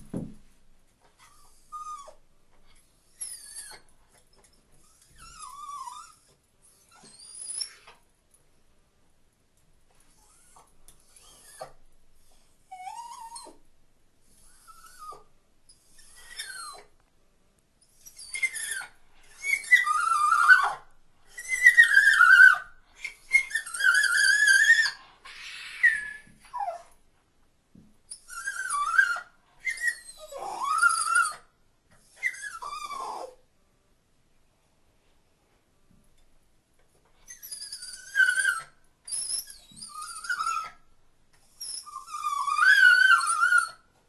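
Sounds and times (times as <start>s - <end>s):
dog whining and whimpering: 1.2s - 2.2s, 3.1s - 3.9s, 4.8s - 7.8s, 10.2s - 11.8s, 12.6s - 13.6s, 14.4s - 16.9s, 17.9s - 27.0s, 28.1s - 33.4s, 37.2s - 40.9s, 41.5s - 43.9s.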